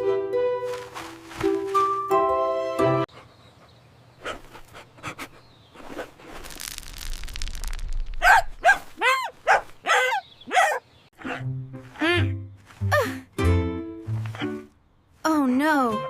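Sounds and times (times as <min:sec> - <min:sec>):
cartoon dog barks: 0:08.2 - 0:11.5.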